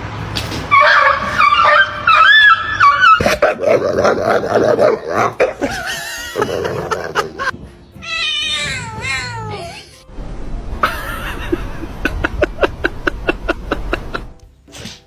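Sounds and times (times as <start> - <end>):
dog whining and yipping: 0.8 - 3.8.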